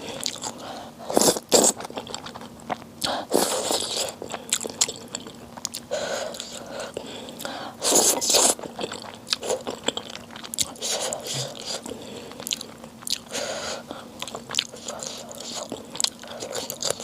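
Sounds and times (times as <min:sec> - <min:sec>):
chewing with crisp clicks: 0:00.2 - 0:00.6, 0:01.2 - 0:03.2, 0:03.8 - 0:13.3, 0:13.9 - 0:17.0.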